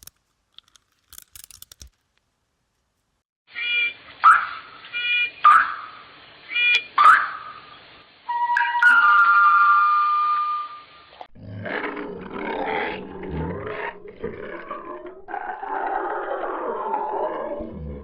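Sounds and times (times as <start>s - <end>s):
high-pitched animal call: 3.5s - 7.7s
rough rumbling animal vocalisation: 11.2s - 18.0s.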